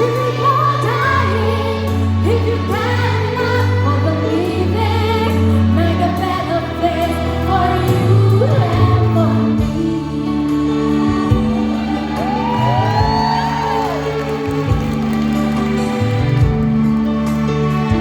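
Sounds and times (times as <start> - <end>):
children's choir singing: 0.0 - 13.5
instrumental accompaniment: 0.0 - 18.0.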